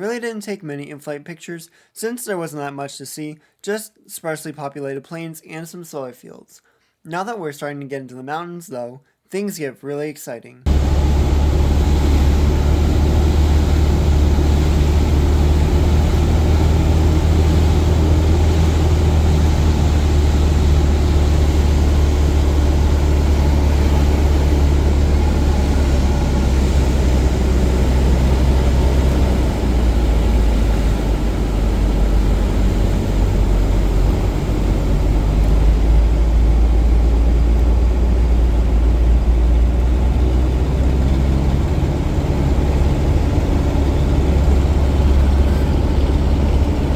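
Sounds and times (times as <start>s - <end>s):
airplane engine and propeller drone: 10.7s - 46.9s
rushing air noise: 10.7s - 46.9s.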